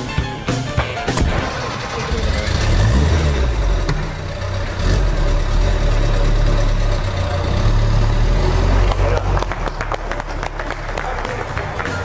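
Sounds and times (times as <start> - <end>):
car engine idling: 0.8 - 12.0
hand clapping: 8.9 - 12.0.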